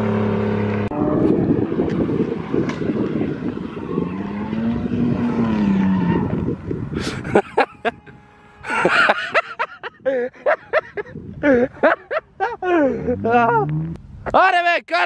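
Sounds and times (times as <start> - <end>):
car engine revving: 0.0 - 9.5
people talking: 14.3 - 15.0.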